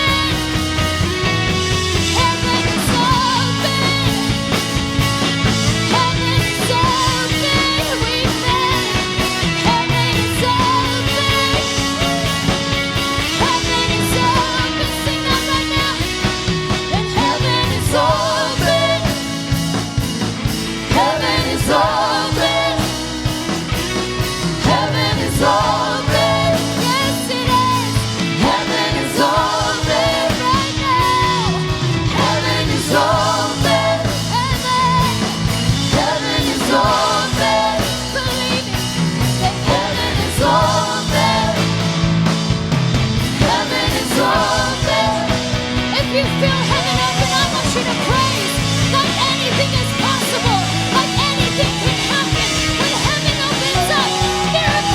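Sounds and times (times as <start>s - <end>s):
rock band worship song: 0.0s - 54.9s.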